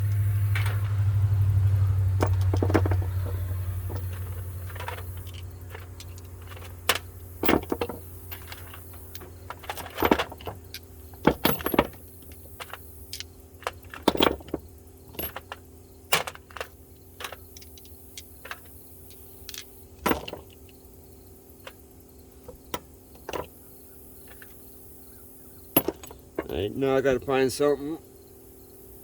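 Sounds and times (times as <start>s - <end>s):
metal sockets clinking: 2.2s - 20.8s, 21.6s - 27.2s.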